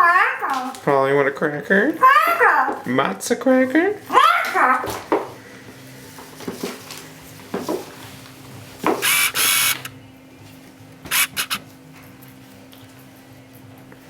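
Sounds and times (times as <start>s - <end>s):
screechy parrot squawks: 9.0s - 9.9s, 11.1s - 11.6s.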